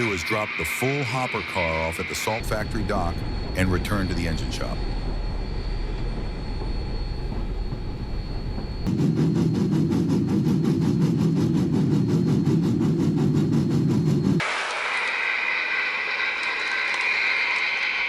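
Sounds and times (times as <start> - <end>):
toy train motor rumble: 14.4 - 18.0.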